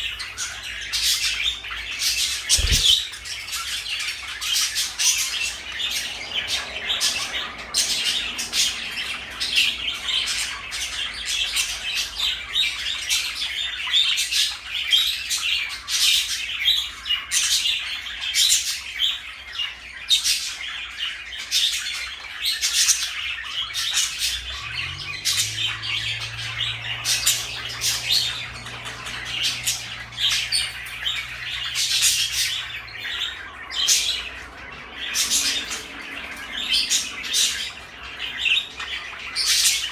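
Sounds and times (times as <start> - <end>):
parakeets chattering: 0.0 - 13.6, 22.8 - 39.9.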